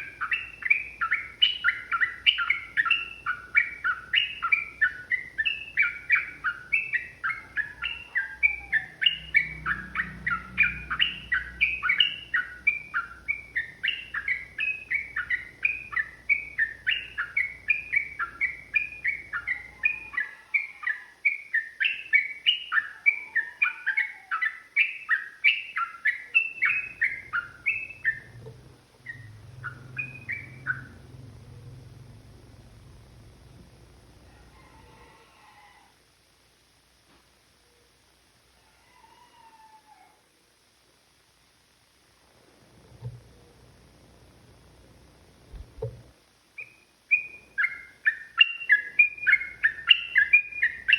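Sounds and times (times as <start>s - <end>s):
bird chattering song: 0.0s - 28.4s, 29.0s - 31.8s, 46.6s - 50.9s.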